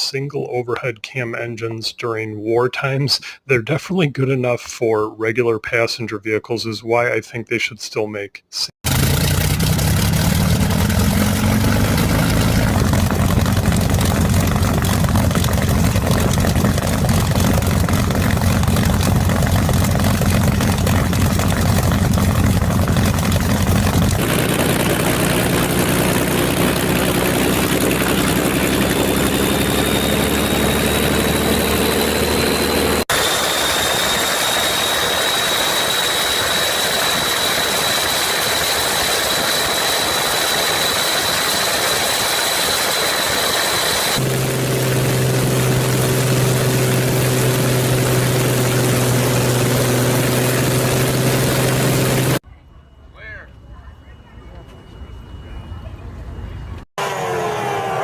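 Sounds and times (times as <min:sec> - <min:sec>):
engine idling: 0:08.9 - 0:52.4.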